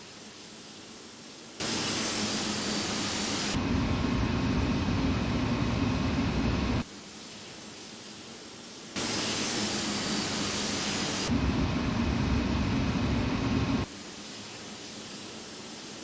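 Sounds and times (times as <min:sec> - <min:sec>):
jet engine roar: 0:01.6 - 0:06.9, 0:09.0 - 0:13.9.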